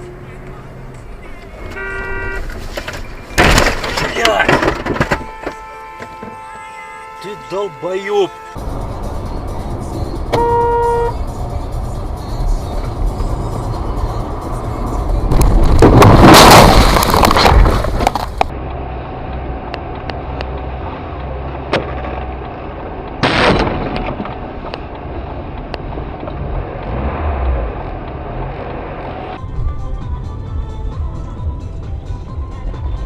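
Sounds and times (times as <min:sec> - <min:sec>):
road rumble: 0:00.0 - 0:33.0
car crash impact: 0:02.4 - 0:05.4, 0:15.3 - 0:18.5, 0:23.2 - 0:24.3
bang: 0:03.3 - 0:05.4, 0:15.8 - 0:18.0, 0:23.2 - 0:24.2.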